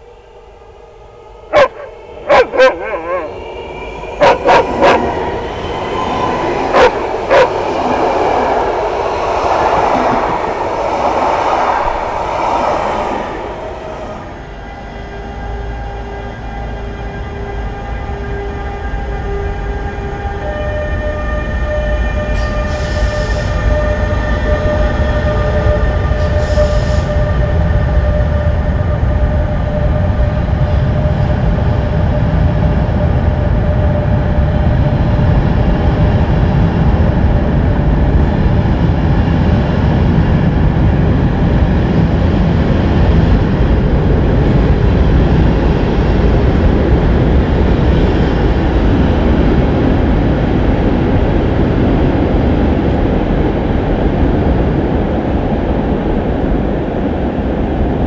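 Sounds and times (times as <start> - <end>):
electric locomotive whine: 0.0 - 58.0
train wheels rumbling on rails: 1.5 - 58.0.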